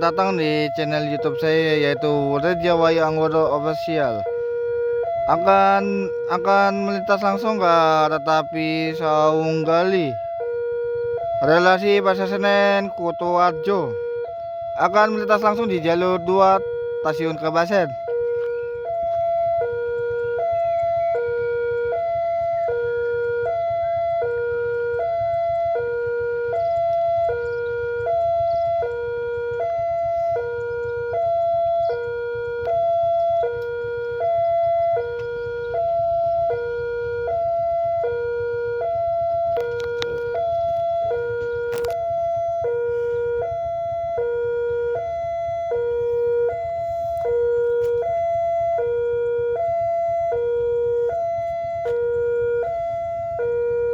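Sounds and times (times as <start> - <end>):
two-tone railway warning alarm: 0.0 - 53.9
sharp clicks: 39.5 - 42.1.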